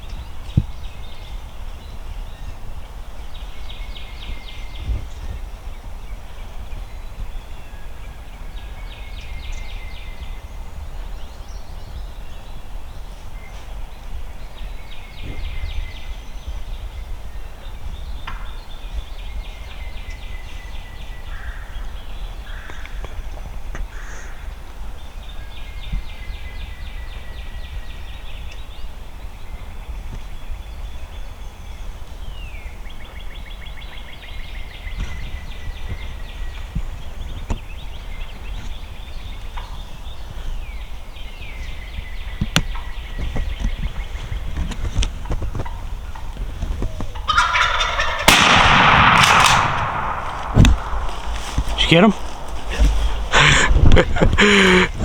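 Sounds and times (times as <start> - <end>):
low wind rumble: 0.0 - 55.0
short low turkey calls: 42.6 - 55.0
turkeys gobbling: 45.0 - 55.0.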